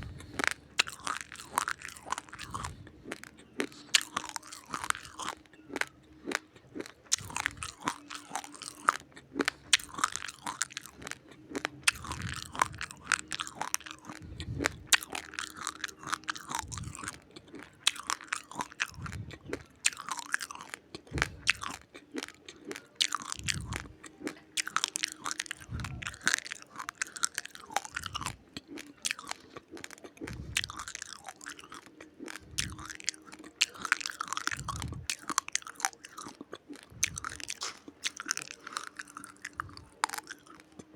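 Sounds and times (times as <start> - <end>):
person chewing crunchy rice: 0.0 - 40.9.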